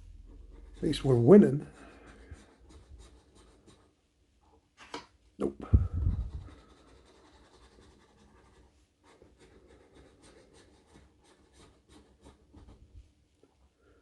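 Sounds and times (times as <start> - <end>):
scratching lottery ticket: 0.3 - 4.0, 6.1 - 12.9.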